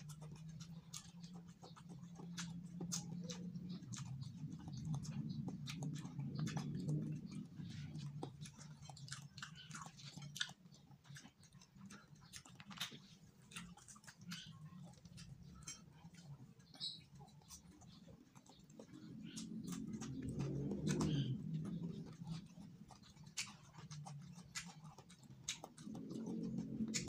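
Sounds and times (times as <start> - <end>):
steady low hum: 0.0 - 27.0
wet chewing and lip-smacking: 0.0 - 27.0
low rumbling: 18.8 - 23.1, 25.8 - 27.0.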